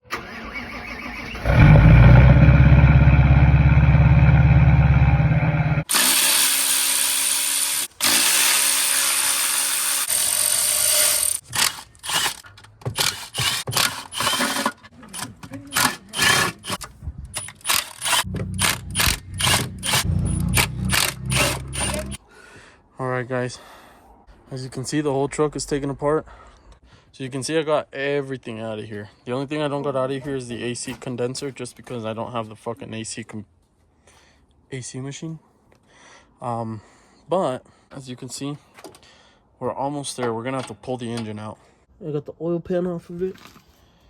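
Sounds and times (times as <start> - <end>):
loud low machine hum: 2.0 - 5.9, 18.3 - 22.2
power tool rapid bursts: 5.8 - 12.4, 17.4 - 22.2.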